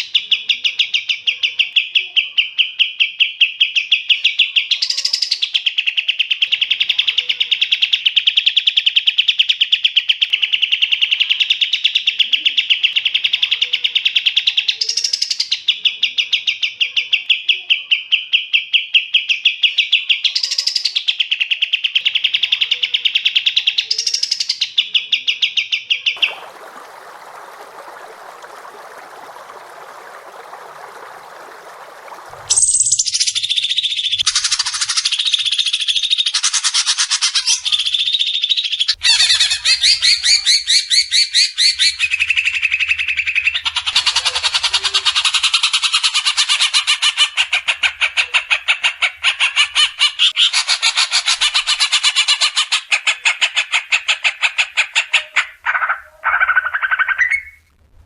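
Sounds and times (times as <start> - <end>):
songbird rattling trill: 32.5 - 42.8.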